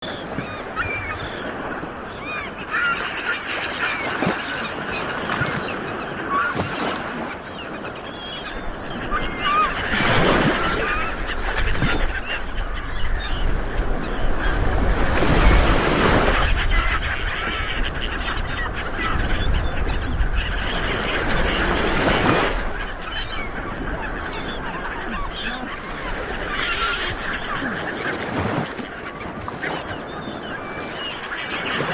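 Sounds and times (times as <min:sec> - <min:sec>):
sea waves washing on shore: 0:00.0 - 0:17.7, 0:20.7 - 0:31.9
seagulls calling: 0:00.0 - 0:31.9.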